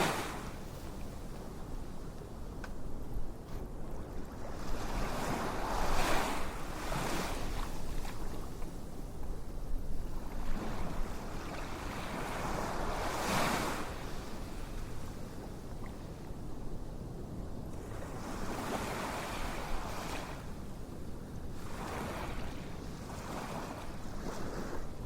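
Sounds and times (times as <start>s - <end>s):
ocean waves washing in: 0.0s - 0.8s.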